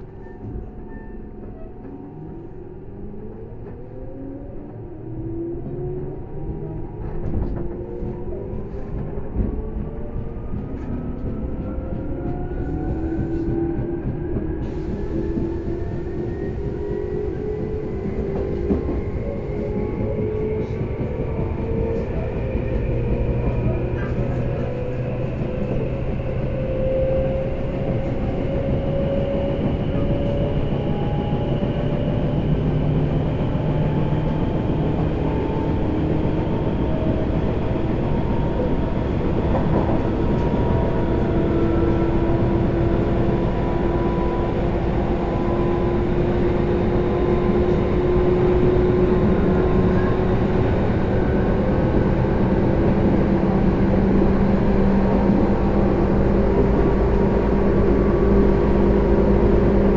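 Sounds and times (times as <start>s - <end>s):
wheel and track rumble: 0.0s - 59.9s.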